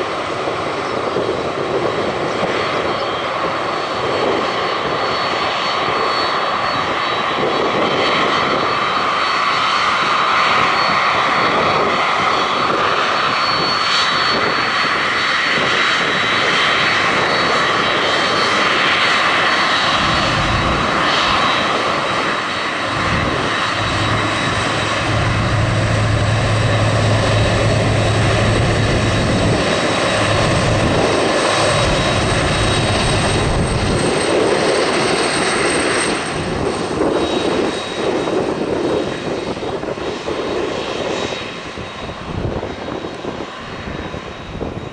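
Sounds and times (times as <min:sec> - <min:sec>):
airliner engines running: 0:00.0 - 0:44.9
thin high whine: 0:22.8 - 0:33.4.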